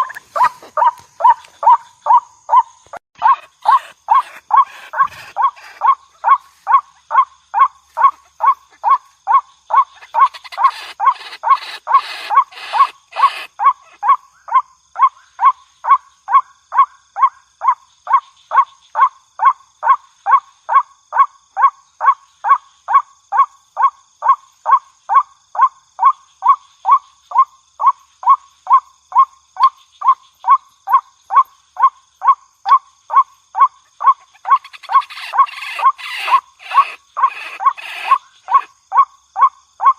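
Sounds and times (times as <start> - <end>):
waterhen calling: 0.0 - 14.2, 34.0 - 38.7
harsh noisy bird calls: 0.0 - 16.0, 33.6 - 38.8.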